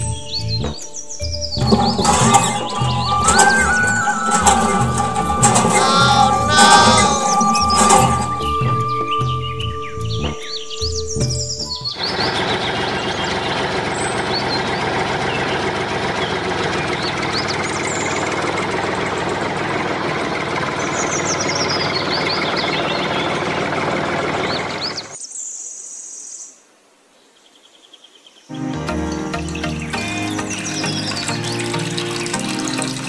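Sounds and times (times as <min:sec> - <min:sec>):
birds chirping: 0:00.0 - 0:13.7
tractor engine running: 0:01.5 - 0:25.0.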